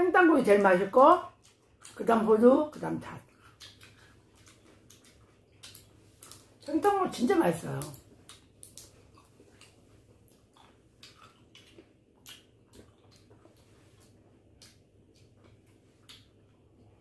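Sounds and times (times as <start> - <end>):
low steady hum: 0.0 - 17.0
soft chewing clicks and smacks: 1.2 - 2.1, 2.7 - 7.0, 7.6 - 17.0.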